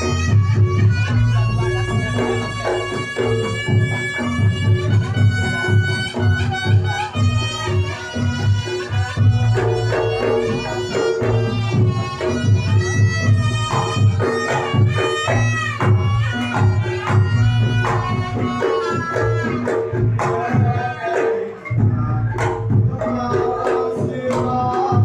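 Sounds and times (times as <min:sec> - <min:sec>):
drum strokes: 0:00.0 - 0:25.0
shawm wavering melody: 0:00.0 - 0:25.0.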